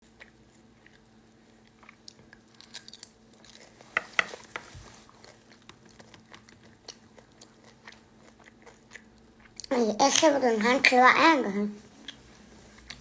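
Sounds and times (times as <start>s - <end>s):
person chewing: 0.0s - 9.7s
steady low hum: 0.0s - 13.0s.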